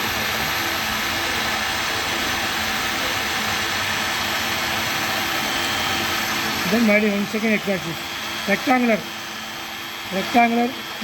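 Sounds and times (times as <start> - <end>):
milling machine motors running: 0.0 - 11.0.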